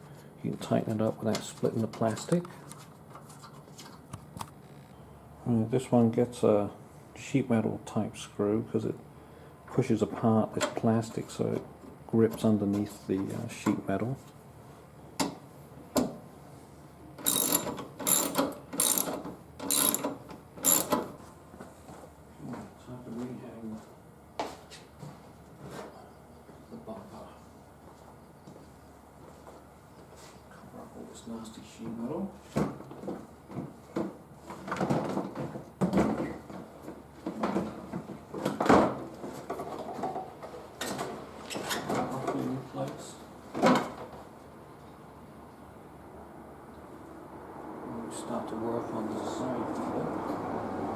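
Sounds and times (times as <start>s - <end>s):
hand ratchet clicking: 17.2s - 21.0s.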